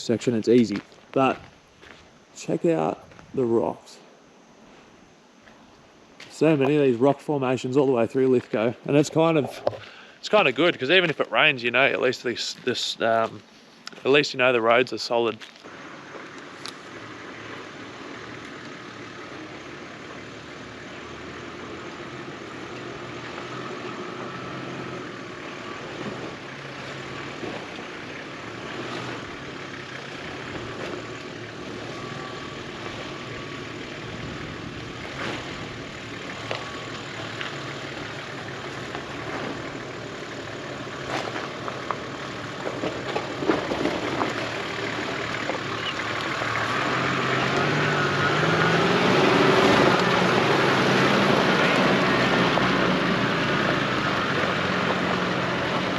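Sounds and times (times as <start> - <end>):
engine running at low revs: 15.7 - 55.9.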